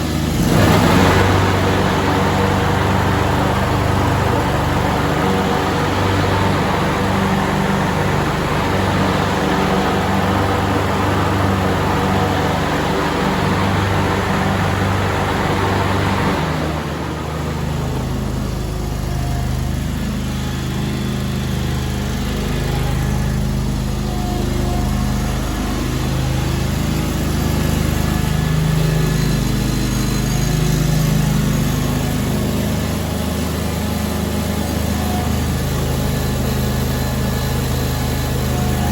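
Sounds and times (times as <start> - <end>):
broad rushing noise: 0.0 - 19.1
garden tractor engine running: 0.0 - 38.9.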